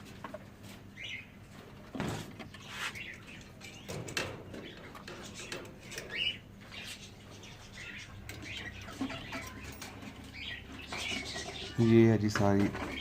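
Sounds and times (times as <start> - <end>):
parrots chirping and calling: 2.6 - 13.0.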